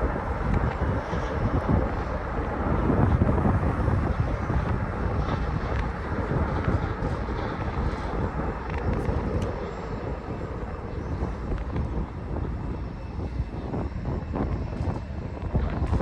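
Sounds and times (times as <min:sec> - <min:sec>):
jet engine rumble: 0:00.0 - 0:16.0
wind buffeting microphone: 0:00.0 - 0:16.0.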